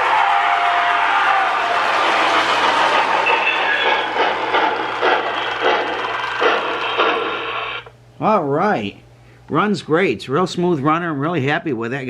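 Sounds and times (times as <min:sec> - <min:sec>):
rhythmic clatter of wheels: 0:00.0 - 0:07.9
toy train running on track: 0:00.0 - 0:07.9.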